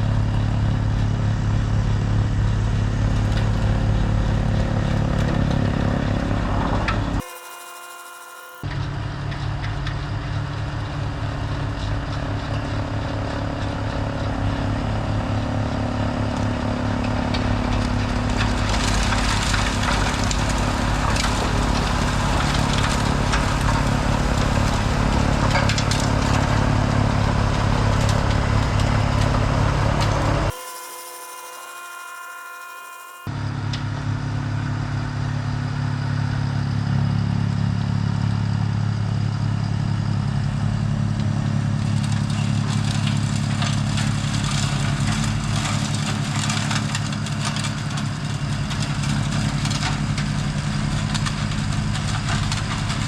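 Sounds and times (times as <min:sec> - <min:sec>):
steady whine: 0:00.0 - 0:41.4
snowblower engine running: 0:00.0 - 0:53.0.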